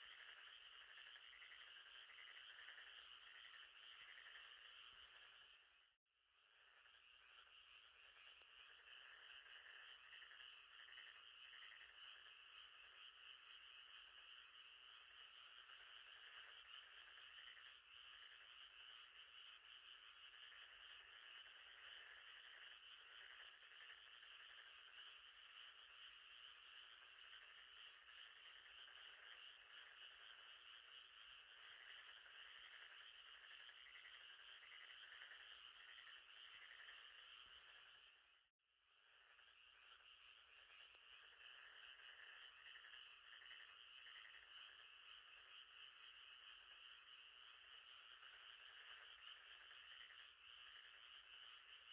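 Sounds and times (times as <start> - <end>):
frogs trilling: 0.0 - 51.9.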